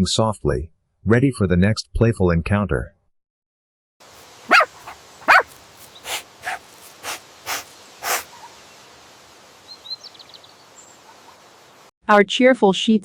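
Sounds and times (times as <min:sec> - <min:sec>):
puppy breathy puffs: 0:04.2 - 0:08.3
puppy yipping: 0:04.5 - 0:08.3
faint bird chirp: 0:04.5 - 0:08.9.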